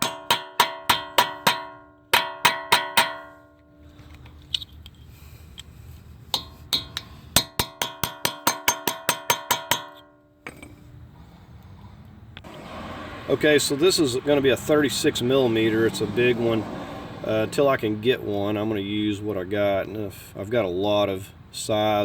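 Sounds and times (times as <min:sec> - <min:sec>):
hammer striking metal punch: 0:00.0 - 0:03.6, 0:06.3 - 0:10.7.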